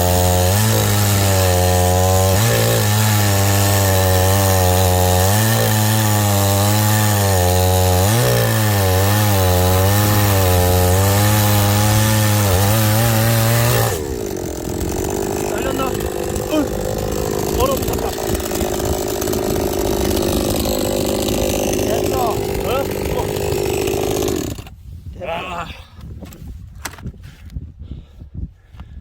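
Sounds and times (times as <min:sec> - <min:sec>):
chainsaw cutting logs: 0:00.0 - 0:24.8.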